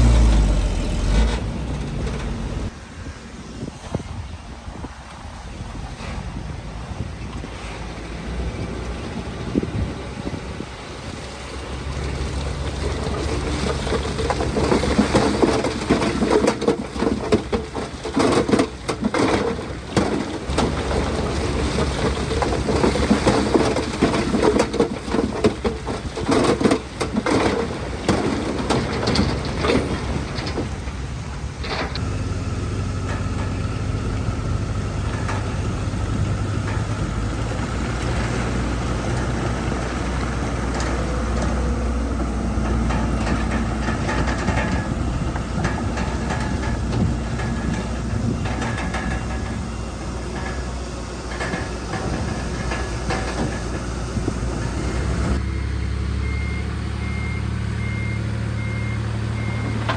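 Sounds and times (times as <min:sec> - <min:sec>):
heavy diesel machinery running: 0:00.0 - 0:59.9
stone crunching and clattering: 0:13.0 - 0:32.0.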